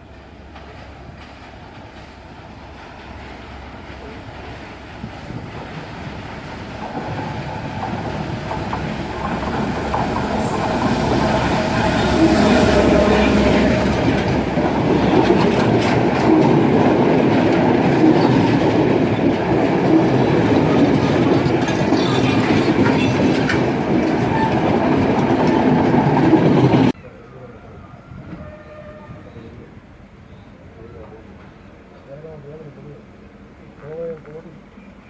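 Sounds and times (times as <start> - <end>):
train wheels rumbling on rails: 0.0 - 27.0
wheels clicking over rail joints: 0.5 - 12.0, 13.2 - 27.0.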